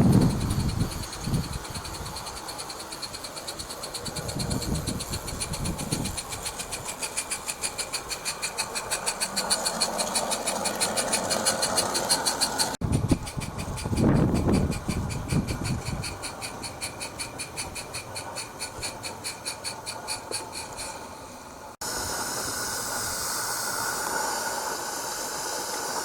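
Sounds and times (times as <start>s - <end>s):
model locomotive running on track: 0.0s - 26.0s.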